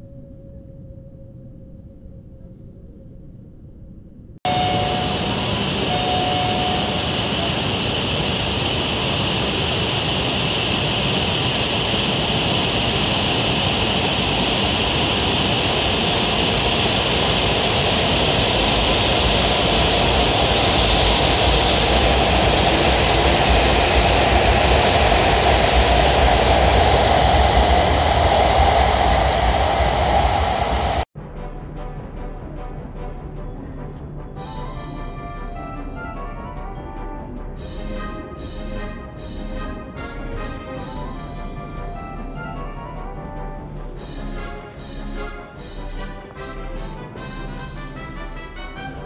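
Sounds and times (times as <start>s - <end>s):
low rumble: 0.0s - 49.0s
short tones: 4.5s - 7.6s
train rushing past: 4.5s - 49.0s.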